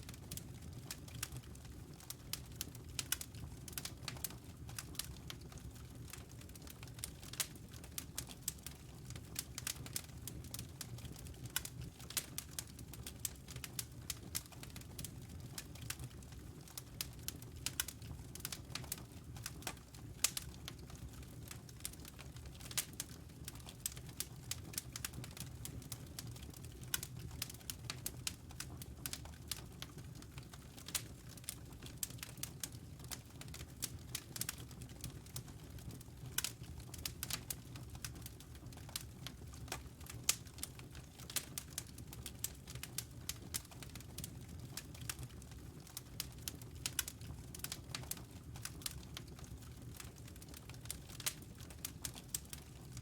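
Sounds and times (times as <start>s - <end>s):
log fire crackling and popping: 0.0s - 53.0s.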